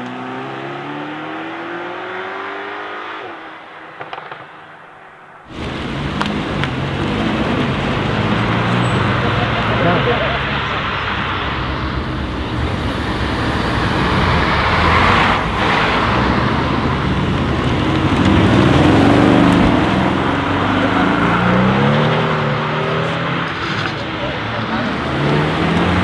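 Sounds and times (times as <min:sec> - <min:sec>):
car engine accelerating hard: 0:05.5 - 0:26.0.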